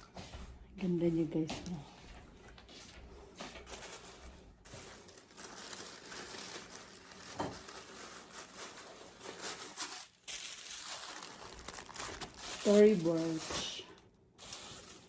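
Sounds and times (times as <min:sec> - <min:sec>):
packaging crinkling and rustling: 0:03.5 - 0:15.0.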